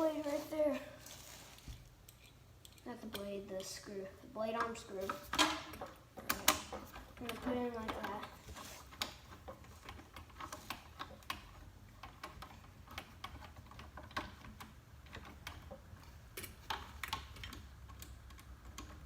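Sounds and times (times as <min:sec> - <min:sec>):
small metal hardware clicking: 0:02.0 - 0:03.7.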